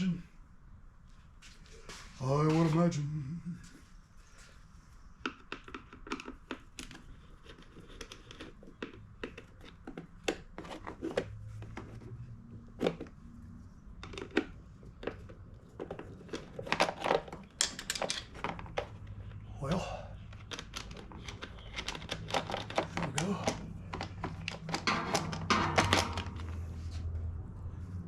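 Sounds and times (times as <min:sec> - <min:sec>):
hand tools clicking on plastic: 0:05.2 - 0:12.1, 0:14.0 - 0:19.5, 0:20.2 - 0:26.6.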